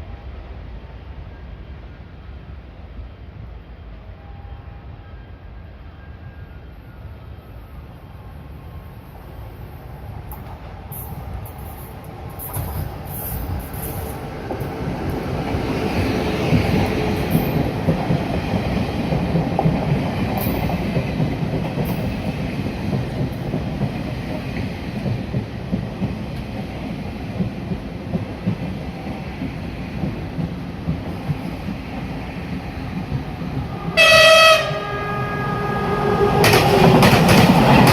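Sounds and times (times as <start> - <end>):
train rumble: 0.0 - 37.9
wheels clacking over rail joints: 36.4 - 37.9.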